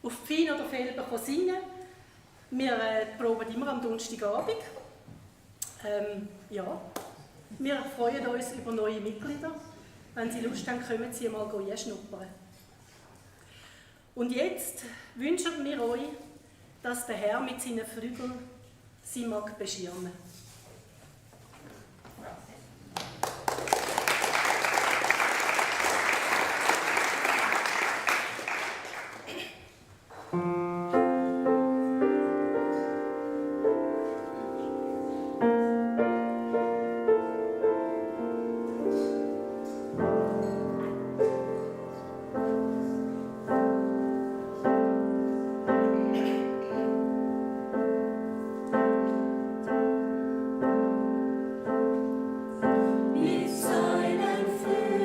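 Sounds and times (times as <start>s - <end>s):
audience applauding: 22.9s - 29.4s
piano chords: 30.3s - 55.0s.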